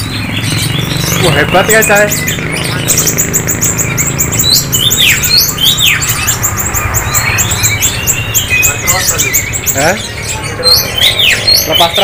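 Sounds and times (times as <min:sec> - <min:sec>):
downward sweeping bird whistles: 0:00.0 - 0:12.0
songbirds twittering: 0:00.0 - 0:12.0.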